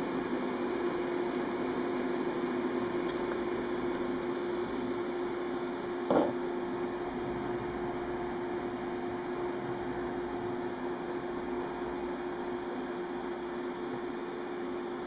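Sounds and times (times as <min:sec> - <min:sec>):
electric fan humming: 0:00.0 - 0:15.0.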